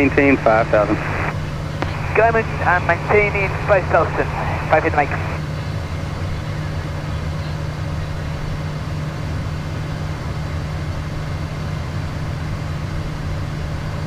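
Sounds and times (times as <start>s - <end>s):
jet cockpit engine drone: 0.0s - 8.6s.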